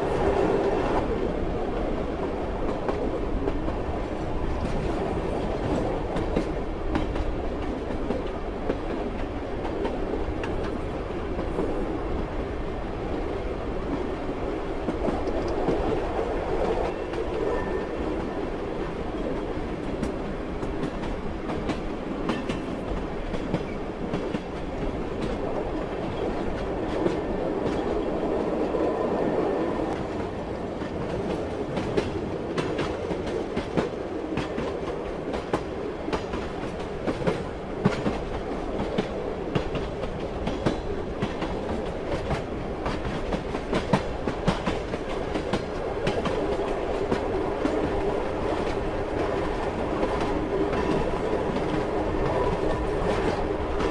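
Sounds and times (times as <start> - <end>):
train rumbling: 0.0 - 53.9
train wheels clicking over rail joints: 19.1 - 28.2, 29.9 - 53.9.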